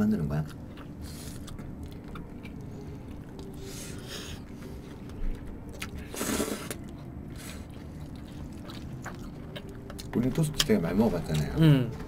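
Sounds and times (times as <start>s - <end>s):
steady low hum: 0.0s - 12.0s
people chewing: 0.2s - 12.0s.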